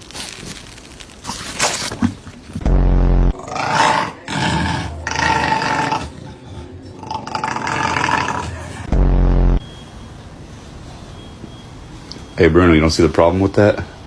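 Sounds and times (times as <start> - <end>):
dog growling: 3.4 - 8.9.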